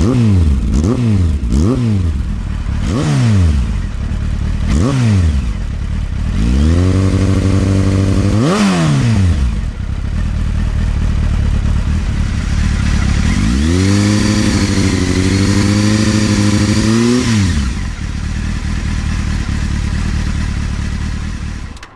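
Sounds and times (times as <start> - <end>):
motorcycle engine idling and revving: 0.0 - 21.9.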